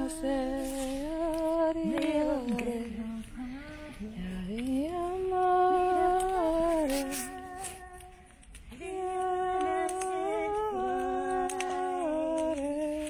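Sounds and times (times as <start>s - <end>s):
person humming a slow tune: 0.0s - 13.0s.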